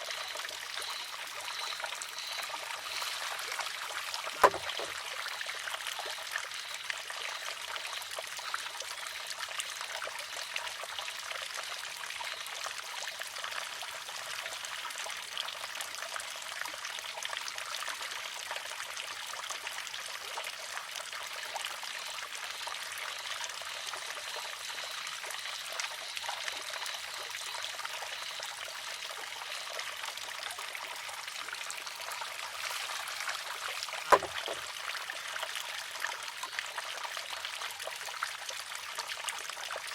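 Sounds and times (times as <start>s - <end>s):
water trickling: 0.0s - 17.5s, 18.2s - 39.9s
bamboo arm clacking on rock: 4.3s - 5.0s, 34.1s - 34.7s.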